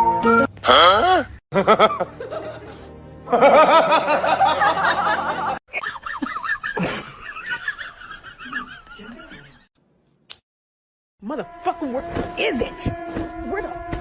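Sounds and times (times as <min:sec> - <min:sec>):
people laughing: 0:01.5 - 0:09.7.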